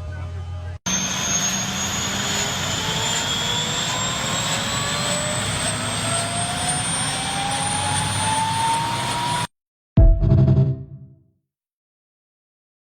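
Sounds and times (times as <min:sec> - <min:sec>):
jet engine whine: 0:00.0 - 0:09.5.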